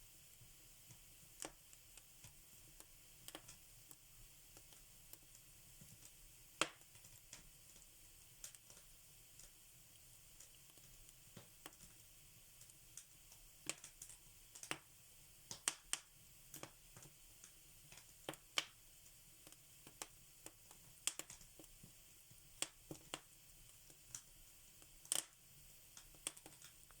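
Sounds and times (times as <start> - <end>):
soft steady fire hiss: 0.0 - 27.0
fire crackling and popping: 0.3 - 27.0.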